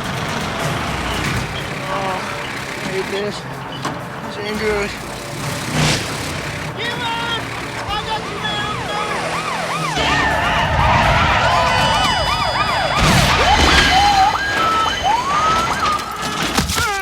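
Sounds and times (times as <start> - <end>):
car engines rumbling: 0.0 - 17.0
police sirens yelping: 0.0 - 17.0
siren wail sweeping upward: 7.3 - 16.5.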